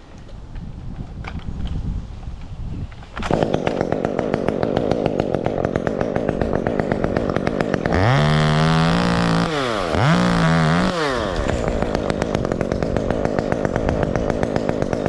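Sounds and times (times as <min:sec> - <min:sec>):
chainsaw idling and revving: 0:03.2 - 0:15.0.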